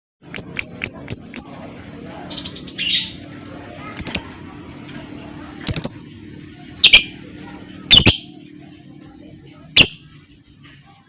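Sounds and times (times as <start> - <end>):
bird chirping: 0.2 - 1.7, 2.3 - 3.3, 4.0 - 4.4, 5.5 - 6.2, 6.8 - 7.2, 7.9 - 8.4.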